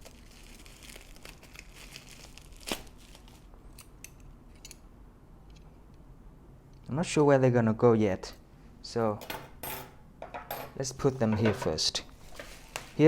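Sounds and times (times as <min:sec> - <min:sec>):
packaging crinkling: 0:00.0 - 0:03.5.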